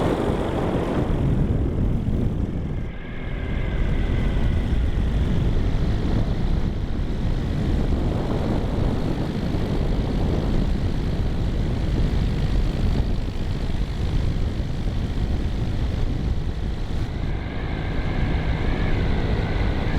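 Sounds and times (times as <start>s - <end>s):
aircraft engine drone: 0.0s - 19.9s
heavy low rumble: 0.0s - 19.9s.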